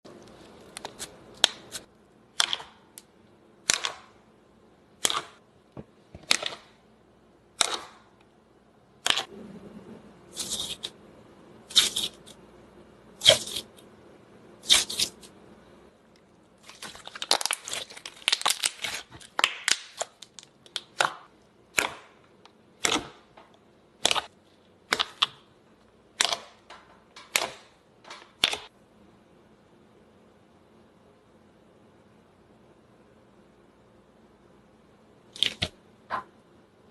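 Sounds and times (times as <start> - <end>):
slime squishing with wet pops: 5.0 - 5.4.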